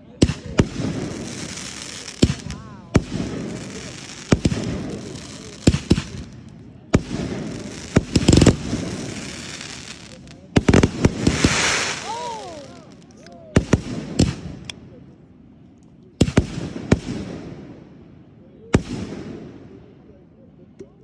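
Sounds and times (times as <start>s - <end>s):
fireworks bangs: 0.0s - 14.7s
fireworks crackling: 0.0s - 14.8s.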